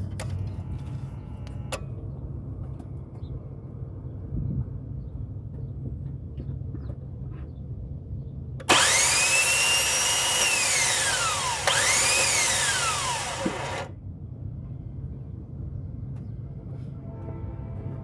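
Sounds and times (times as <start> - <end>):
starter motor whining: 8.7 - 13.9.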